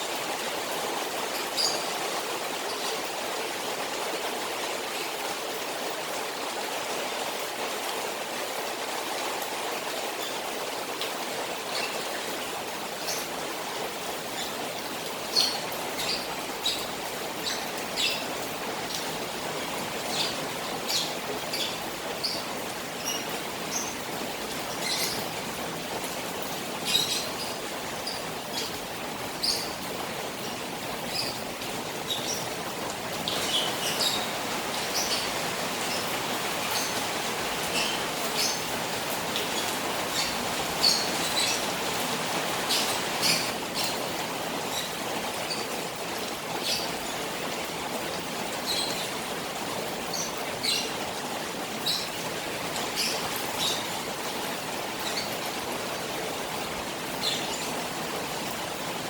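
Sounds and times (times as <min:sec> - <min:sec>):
rain falling on a pond: 0:00.0 - 0:59.0
running water: 0:00.0 - 0:59.0.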